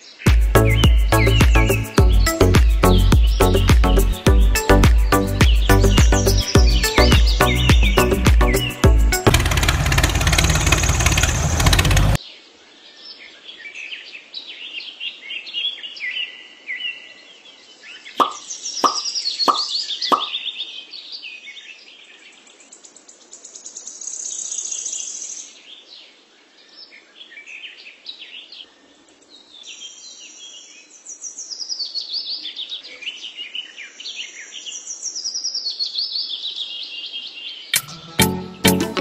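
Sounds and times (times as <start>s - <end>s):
birds chirping and singing: 0.0s - 12.2s, 17.9s - 21.2s.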